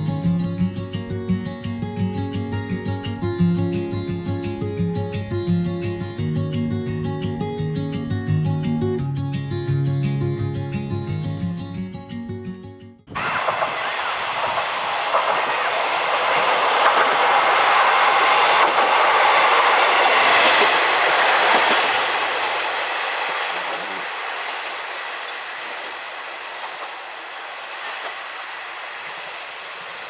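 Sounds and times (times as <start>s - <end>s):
passenger train passing: 0.0s - 11.0s, 13.1s - 30.0s.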